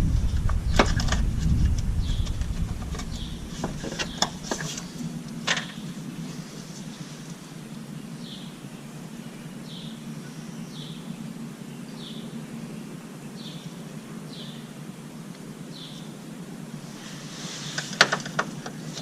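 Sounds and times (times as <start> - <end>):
bird chirping: 0.0 - 7.1, 7.8 - 14.8
low background hum: 0.0 - 19.0.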